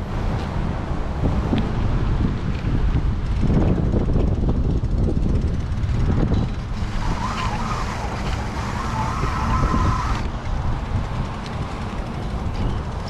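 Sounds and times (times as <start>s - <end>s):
wavering whine: 6.1s - 10.3s.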